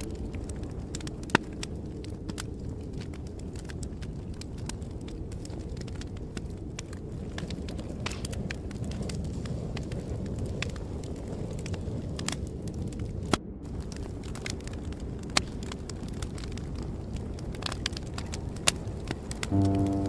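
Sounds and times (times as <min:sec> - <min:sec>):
wood fire crackling and popping: 0:00.0 - 0:20.0
soft sustained music: 0:19.5 - 0:20.0.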